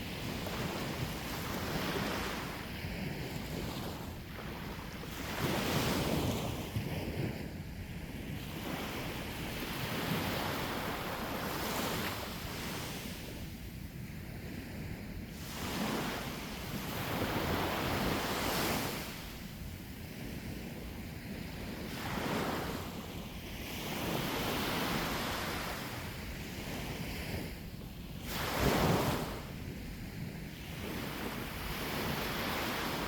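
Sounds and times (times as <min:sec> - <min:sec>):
wind rumbling on microphone: 0:00.0 - 0:33.0
sea waves breaking on shore: 0:15.3 - 0:19.4, 0:21.8 - 0:29.8, 0:30.4 - 0:33.0.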